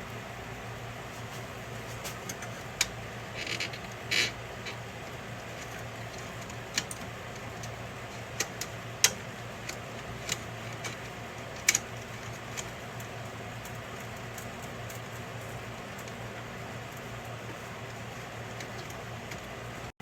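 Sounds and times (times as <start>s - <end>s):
steady low hum: 0.0s - 20.0s
sharp clicks and knocks of parts: 5.4s - 16.2s, 16.9s - 19.5s.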